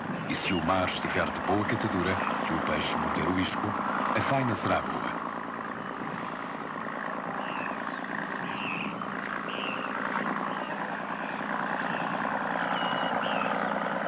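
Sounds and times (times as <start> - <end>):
boat engine running: 0.0 - 14.0
high bird chirps: 7.4 - 13.6.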